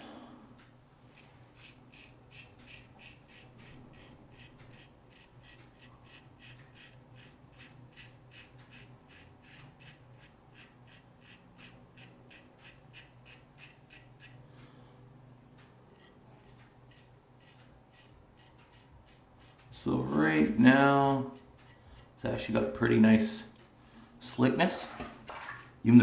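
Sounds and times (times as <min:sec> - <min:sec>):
razor scraping stubble: 0:01.1 - 0:14.4, 0:15.9 - 0:23.4.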